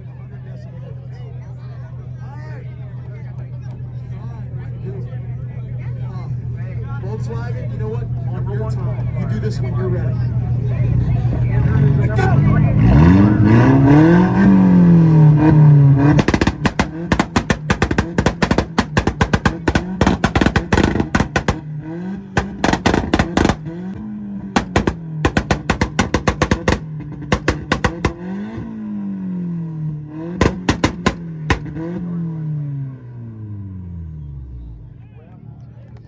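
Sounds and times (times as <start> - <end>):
car engine revving: 11.0 - 34.7
exhaust pops and bangs: 13.0 - 29.0, 30.1 - 32.2.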